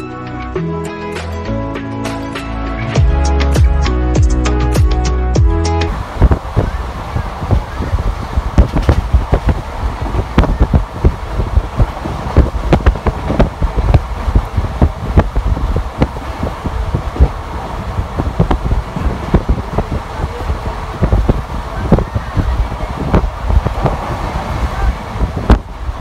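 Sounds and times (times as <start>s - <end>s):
train wheels rumbling on rail: 5.9s - 26.0s
wind buffeting microphone: 5.9s - 26.0s
knocks and clatter: 8.6s - 9.6s.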